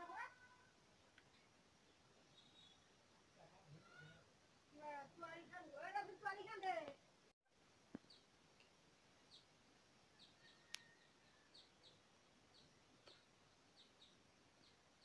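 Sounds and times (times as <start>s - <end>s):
bird chirping: 1.3s - 3.0s, 8.0s - 8.3s, 9.2s - 15.0s.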